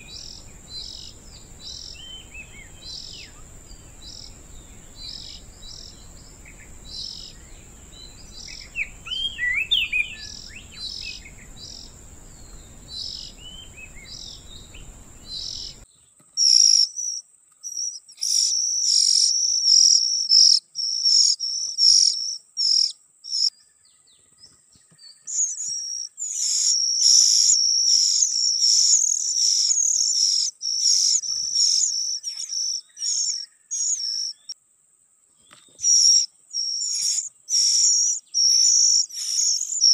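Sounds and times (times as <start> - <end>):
gliding whistled bird notes: 0.0 - 15.8
high cricket-like whine: 0.0 - 23.8, 25.2 - 39.9
bird chirping: 0.0 - 34.6, 35.4 - 39.9
background hiss: 0.0 - 39.9.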